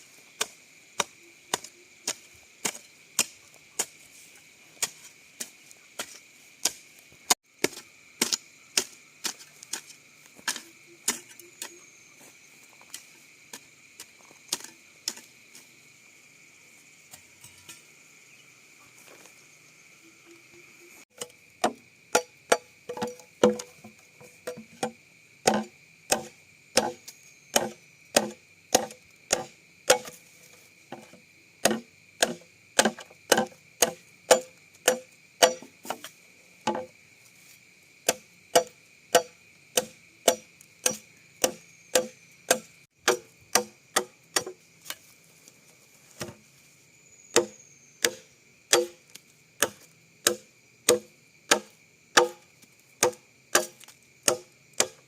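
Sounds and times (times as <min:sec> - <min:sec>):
blade chopping bamboo: 0:21.2 - 0:30.2, 0:30.9 - 0:36.9, 0:38.0 - 0:45.0, 0:47.3 - 0:52.4, 0:53.0 - 0:55.0.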